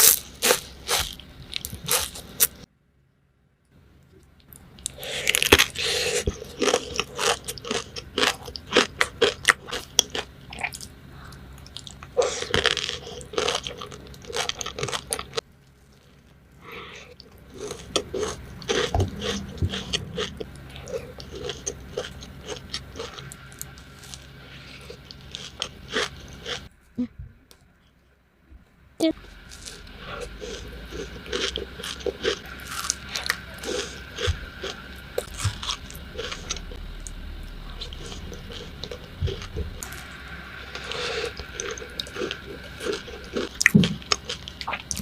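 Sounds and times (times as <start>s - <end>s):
chocolate crunching: 4.8s - 11.0s, 11.6s - 15.4s, 17.2s - 26.7s, 29.2s - 45.0s.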